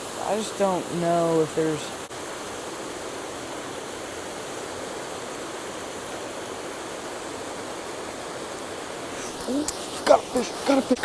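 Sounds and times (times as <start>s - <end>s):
water pouring into a pool: 0.0s - 11.0s.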